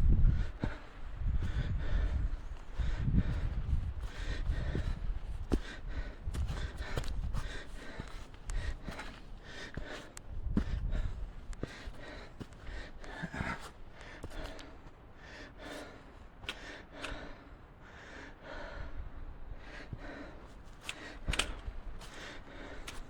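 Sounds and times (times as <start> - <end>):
person breathing hard: 0.1 - 23.0
footsteps on trail: 0.3 - 15.0, 19.8 - 23.0.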